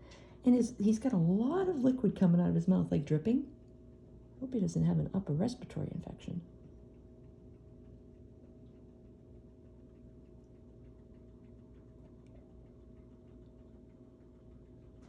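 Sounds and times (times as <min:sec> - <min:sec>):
faint irregular ticks: 0:00.0 - 0:15.0
faint room hum: 0:00.0 - 0:15.0.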